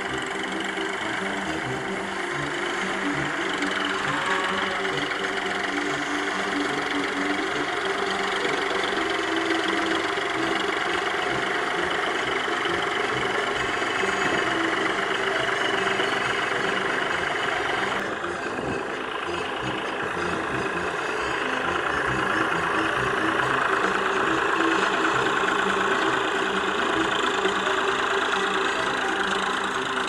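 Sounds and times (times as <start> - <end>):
tractor engine running: 0.0 - 30.0.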